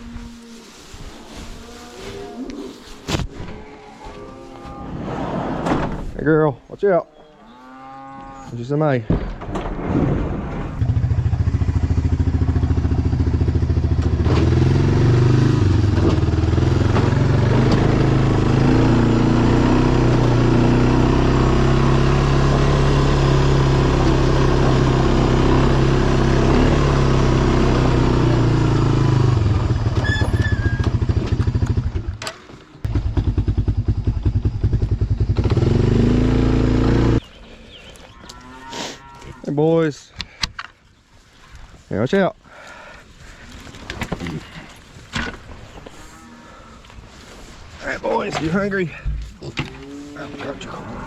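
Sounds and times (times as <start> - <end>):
vehicle engine running: 10.8 - 30.2.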